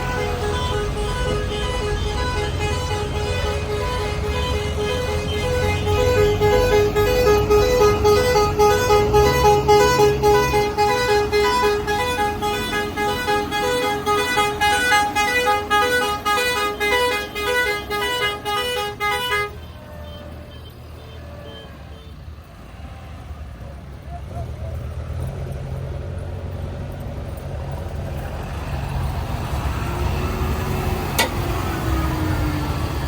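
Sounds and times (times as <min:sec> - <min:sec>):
engine running: 0:00.0 - 0:19.1, 0:23.6 - 0:33.0
musical vehicle horn tune: 0:00.0 - 0:22.2.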